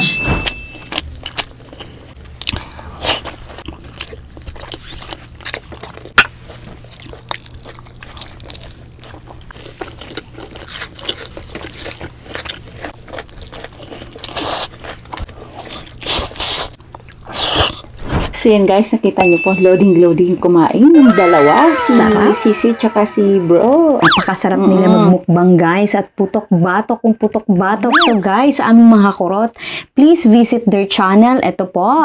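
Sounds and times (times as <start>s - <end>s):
crunchy bites and chewing: 0.9s - 18.0s.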